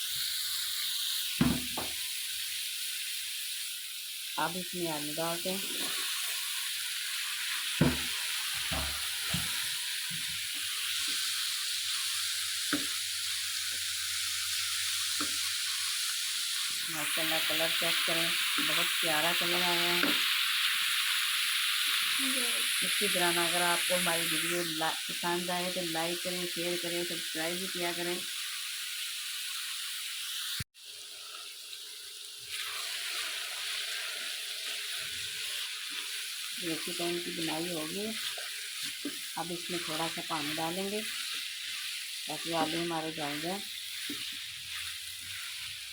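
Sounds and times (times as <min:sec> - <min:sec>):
food sizzling in oil: 0:00.0 - 0:45.9
potatoes stirred in pot: 0:05.1 - 0:13.0, 0:32.5 - 0:45.9.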